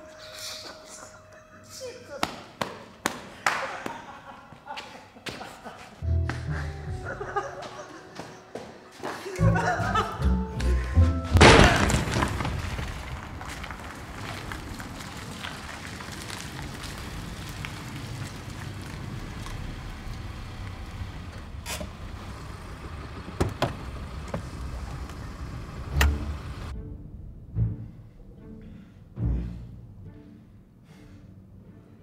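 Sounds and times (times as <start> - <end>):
loud sudden bang: 11.3 - 12.7
rain: 11.4 - 26.7
car engine idling: 18.5 - 26.7.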